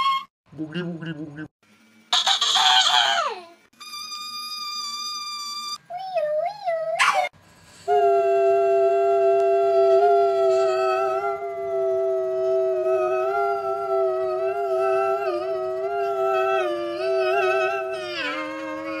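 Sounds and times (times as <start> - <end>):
person howling: 7.9 - 19.0.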